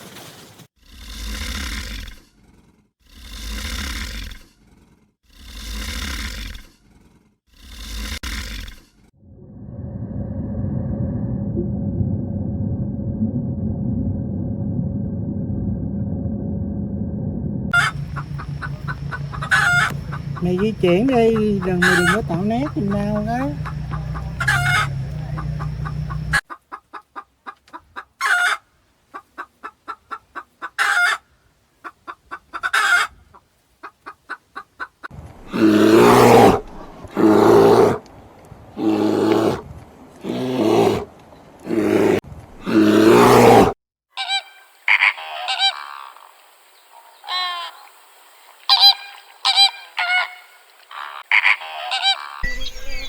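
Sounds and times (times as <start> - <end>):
loud honking calls: 17.7 - 26.4
rapid clucking: 17.7 - 28.1
high chirping bird calls: 17.8 - 26.4, 51.9 - 53.0.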